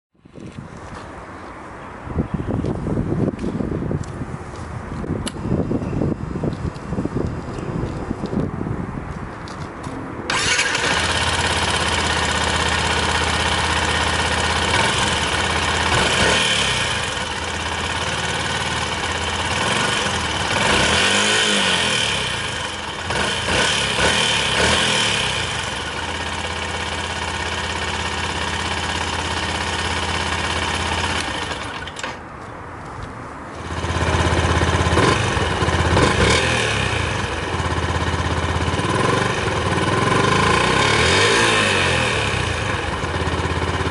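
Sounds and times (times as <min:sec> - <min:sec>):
motorcycle engine revving at idle: 0:10.3 - 0:31.9, 0:33.6 - 0:43.9.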